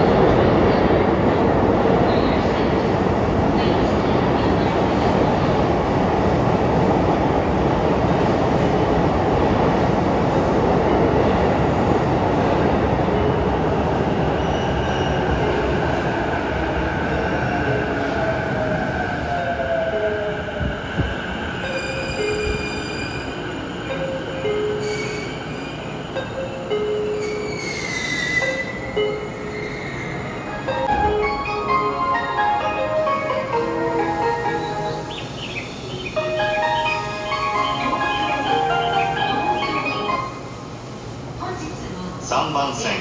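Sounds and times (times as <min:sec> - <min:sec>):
high brake squeal: 0:21.7 - 0:23.5, 0:24.8 - 0:25.9, 0:27.2 - 0:30.5.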